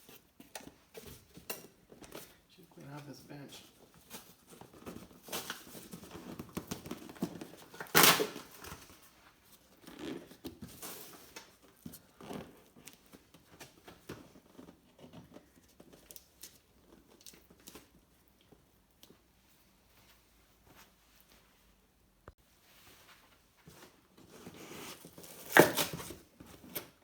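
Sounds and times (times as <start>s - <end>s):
packaging crinkling and rustling: 3.9s - 11.8s
packaging tearing rip: 7.8s - 8.6s.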